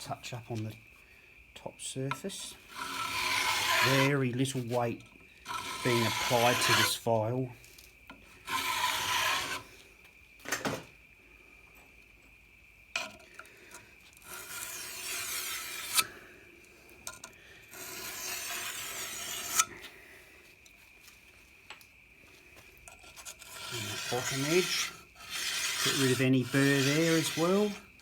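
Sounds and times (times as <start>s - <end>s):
file scraping steel blade: 2.4s - 4.9s, 5.5s - 7.0s, 8.4s - 9.7s, 14.2s - 16.2s, 17.7s - 19.8s, 22.9s - 28.0s.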